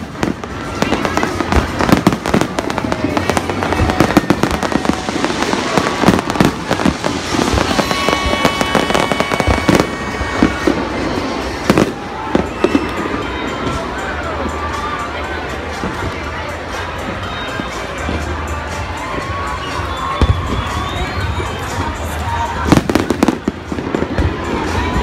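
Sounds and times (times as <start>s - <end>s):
firework shells bursting and crackling: 0.0s - 13.1s.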